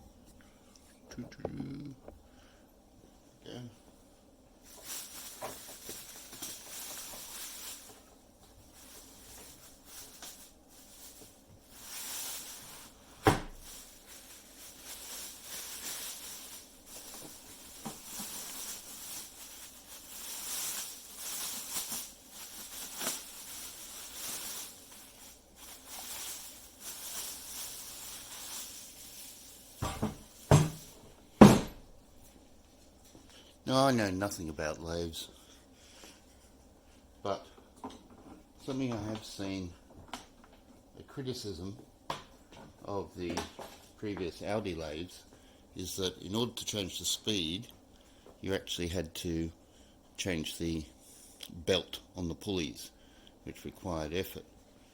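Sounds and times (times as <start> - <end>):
packaging rustling: 4.7 - 31.1.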